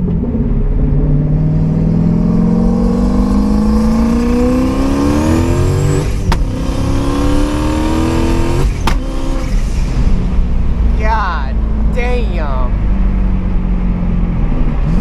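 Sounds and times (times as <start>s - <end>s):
car engine accelerating: 0.0s - 15.0s
sharp crack at upshift: 6.2s - 6.6s, 8.7s - 9.5s.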